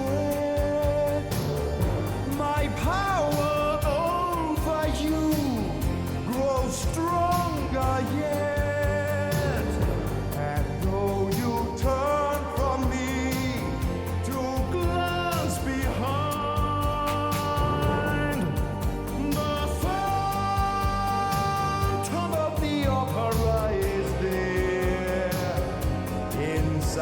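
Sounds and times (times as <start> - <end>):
solo singer: 0.0 - 27.0
steady musical accompaniment: 0.0 - 27.0.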